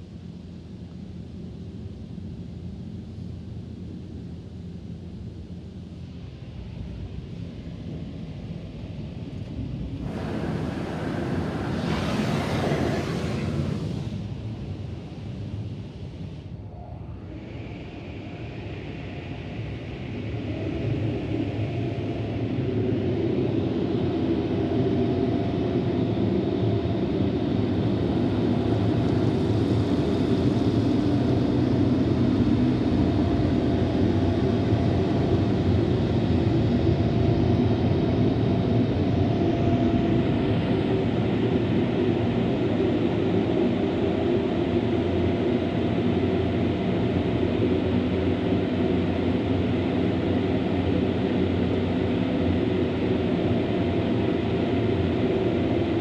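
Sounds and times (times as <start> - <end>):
car wash machinery rumble: 10.0 - 15.3, 27.6 - 35.8.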